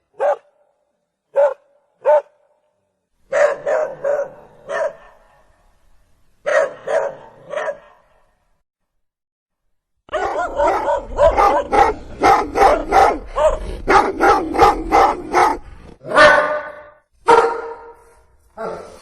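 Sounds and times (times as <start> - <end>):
dog barking: 0.1 - 0.7, 1.3 - 2.5, 3.3 - 5.6, 6.4 - 8.3, 10.1 - 18.0, 18.6 - 19.0.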